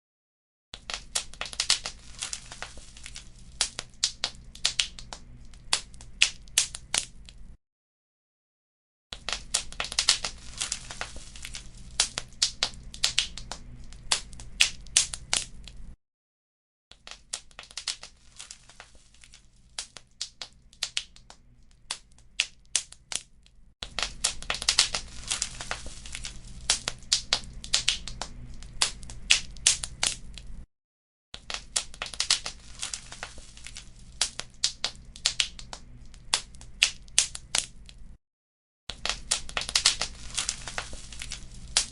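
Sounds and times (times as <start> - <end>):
wood fire crackling and popping: 0.8 - 7.6, 9.2 - 16.0, 17.0 - 30.6, 31.4 - 38.2, 38.9 - 41.9
low steady hum: 9.5 - 16.0, 24.0 - 30.6.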